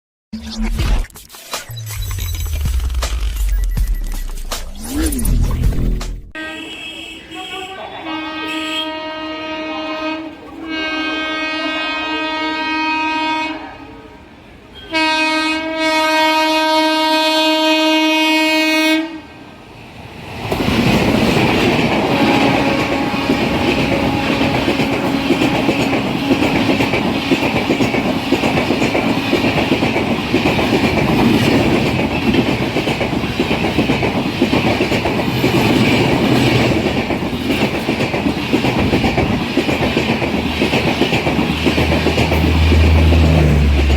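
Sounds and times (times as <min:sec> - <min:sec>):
train horn blasts: 0:06.4 - 0:19.4, 0:22.1 - 0:28.4
train wheels clattering past: 0:20.2 - 0:43.9.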